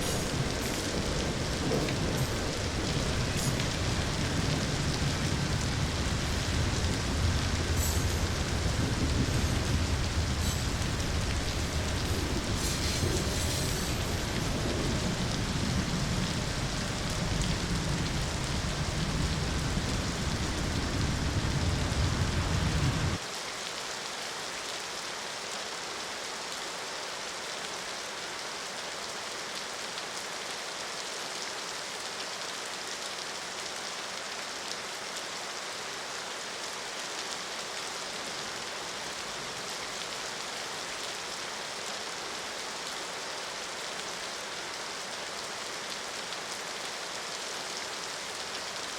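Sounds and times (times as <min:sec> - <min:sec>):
deep low rumble: 0:00.0 - 0:23.2
heavy rain hiss: 0:00.0 - 0:48.9.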